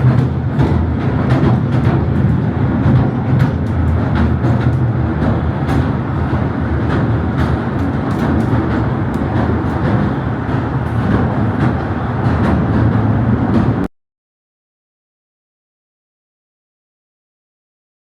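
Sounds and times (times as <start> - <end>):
sharp rail clicks: 0.0 - 13.9
train rumbling: 0.0 - 13.9.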